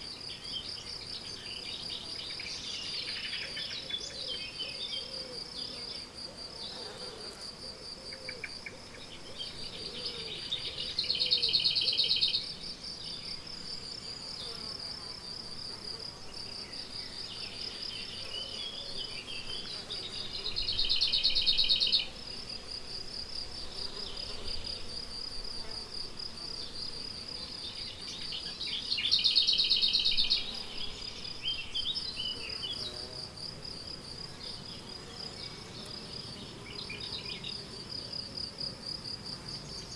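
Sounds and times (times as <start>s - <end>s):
crickets chirring: 0.0s - 39.9s
bird calls and song: 0.1s - 6.1s, 8.1s - 13.4s, 16.4s - 22.1s, 27.5s - 33.0s.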